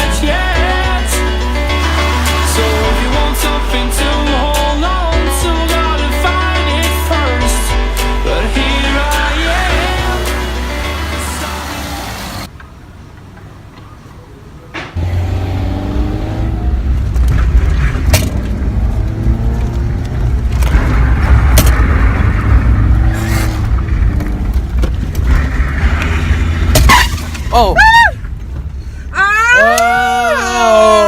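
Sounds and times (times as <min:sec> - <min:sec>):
music: 0:00.0 - 0:12.5
car engine revving: 0:00.0 - 0:12.6, 0:15.0 - 0:27.5.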